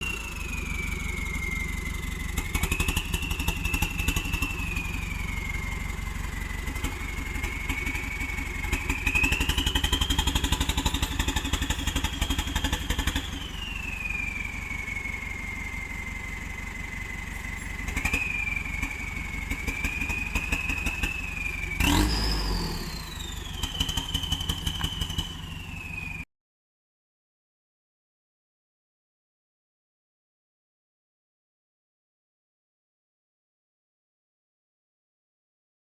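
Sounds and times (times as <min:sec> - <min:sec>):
diesel engine clatter labouring: 0:00.0 - 0:26.2
exhaust whistling scream: 0:00.0 - 0:26.3.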